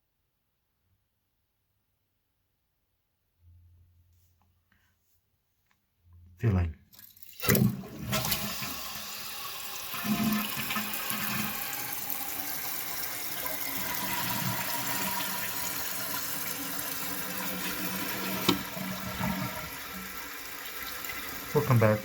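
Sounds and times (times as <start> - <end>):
toilet tank filling with water: 7.0 - 22.0.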